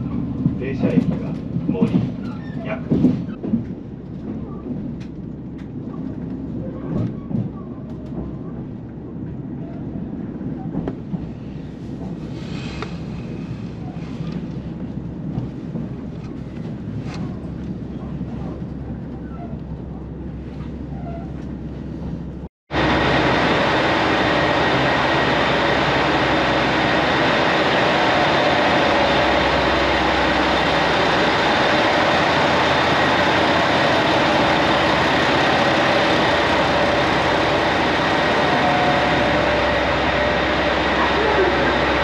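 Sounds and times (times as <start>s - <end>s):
train running at speed: 0.0s - 42.0s.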